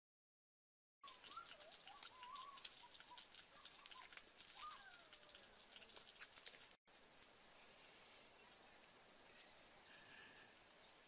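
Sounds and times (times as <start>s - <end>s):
faint birds calling: 1.0s - 6.8s, 7.8s - 11.0s
soft clicks and crackles: 1.5s - 7.4s.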